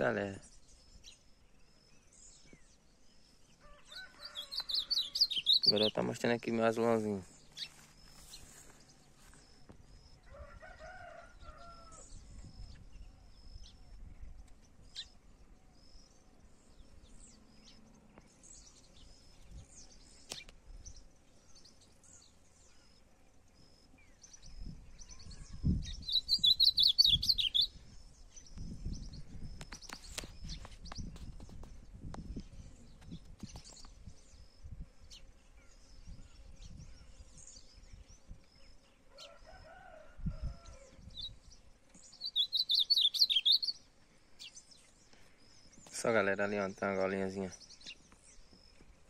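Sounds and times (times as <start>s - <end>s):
rapid twittering birdsong: 0.0s - 49.0s
songbirds chirping: 0.0s - 49.0s
faint rooster crowing: 3.5s - 5.5s, 10.2s - 12.4s, 39.0s - 41.3s.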